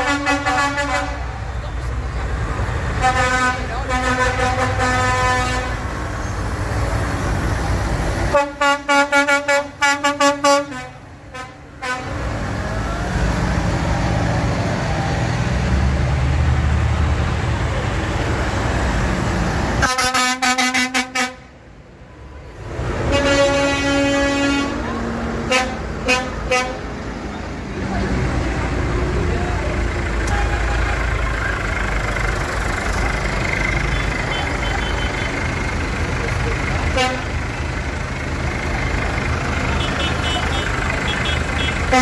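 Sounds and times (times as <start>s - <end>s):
tractor horns tooting: 0.0s - 2.0s, 2.8s - 6.1s, 8.2s - 12.3s, 19.7s - 21.6s, 23.0s - 27.1s, 29.7s - 37.8s, 38.4s - 42.0s
diesel engines running: 0.0s - 42.0s.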